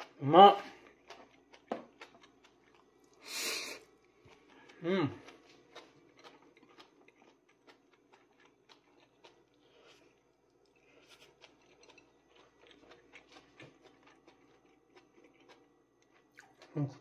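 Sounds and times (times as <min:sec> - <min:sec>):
chewing crunchy greens: 0:00.0 - 0:17.0.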